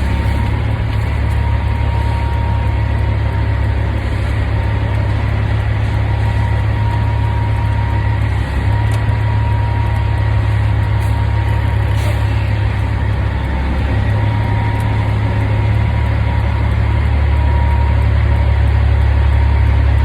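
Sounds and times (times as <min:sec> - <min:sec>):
truck diesel engine running: 0:00.0 - 0:20.0.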